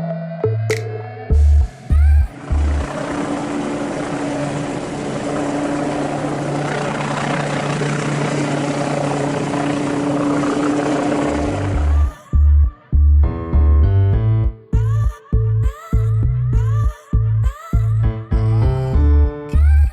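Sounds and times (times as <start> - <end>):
low even hum: 0.5 - 19.9
helicopter flying: 1.9 - 12.5.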